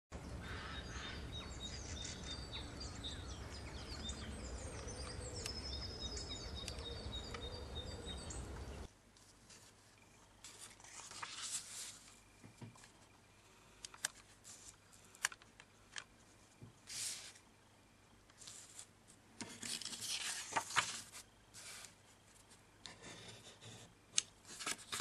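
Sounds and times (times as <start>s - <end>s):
birds chirping and trilling: 0.2s - 8.9s
paper rustling: 9.1s - 13.1s, 13.8s - 17.4s, 18.3s - 22.6s, 24.4s - 25.0s.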